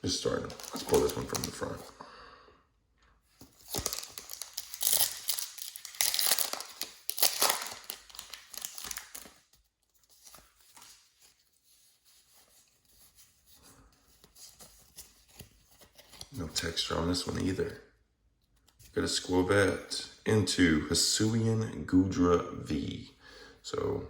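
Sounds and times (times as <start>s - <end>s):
cards rustling: 0.0s - 2.0s, 3.3s - 17.7s
foil wrapper tearing and crinkling: 0.2s - 1.8s, 3.6s - 11.0s.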